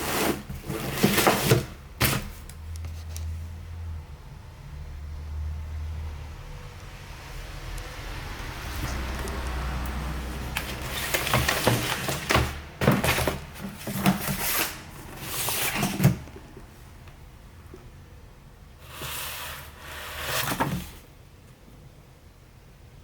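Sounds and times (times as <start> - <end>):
rustling: 8.6 - 17.0.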